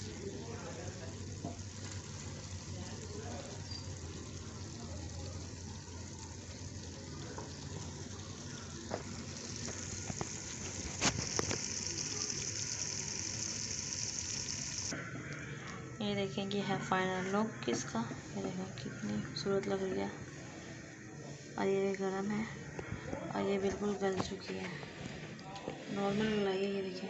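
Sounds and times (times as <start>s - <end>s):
okra and meat sizzling: 0.0s - 15.0s.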